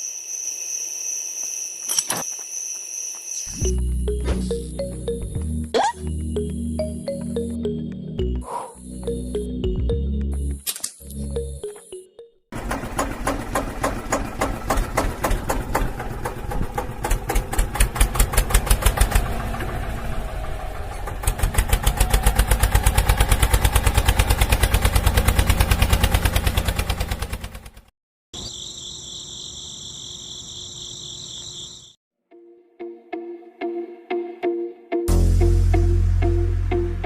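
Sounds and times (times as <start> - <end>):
small tractor engine chugging: 12.6 - 27.9.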